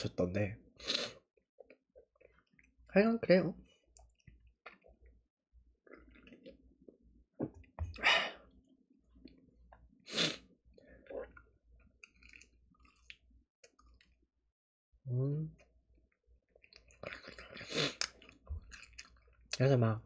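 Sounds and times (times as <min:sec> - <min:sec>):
man chewing food: 0:01.6 - 0:02.9, 0:03.7 - 0:10.0, 0:10.7 - 0:14.2, 0:15.6 - 0:19.6.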